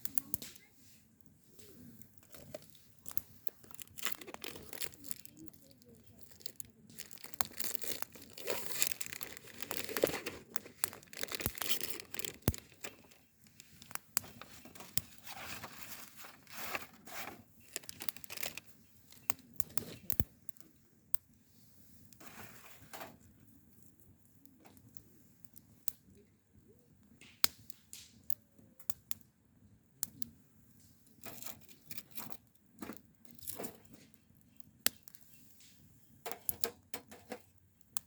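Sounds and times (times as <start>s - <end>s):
crinkly material rustling: 1.6s - 20.1s, 22.2s - 23.2s, 31.2s - 34.2s.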